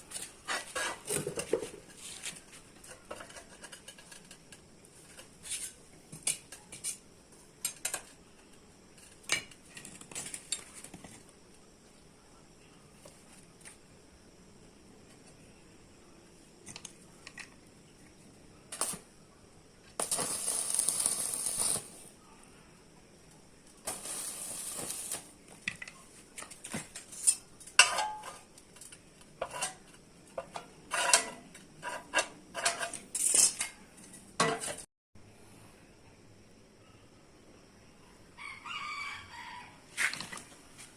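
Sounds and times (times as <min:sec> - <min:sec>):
harsh hiss: 0:20.0 - 0:22.2, 0:23.8 - 0:25.4
metal tools clanking on steel: 0:27.0 - 0:28.5.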